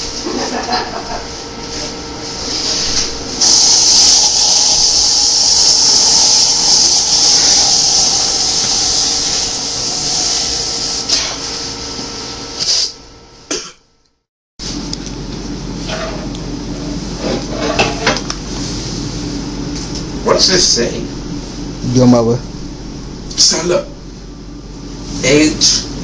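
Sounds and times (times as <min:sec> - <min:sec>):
rushing air hiss: 0:02.4 - 0:11.6.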